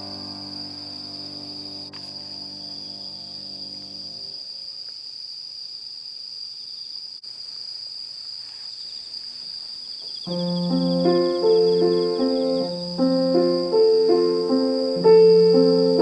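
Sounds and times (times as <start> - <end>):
piano chord: 0.0 - 4.4, 10.3 - 16.0
crickets chirring: 0.0 - 16.0.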